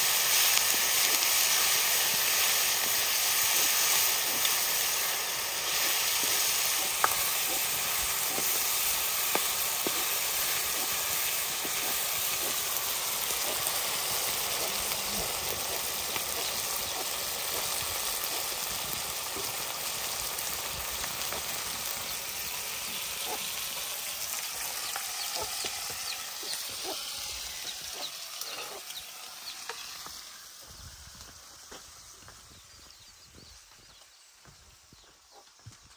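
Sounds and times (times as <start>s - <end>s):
chicken sizzling in a wok: 0.0s - 35.1s.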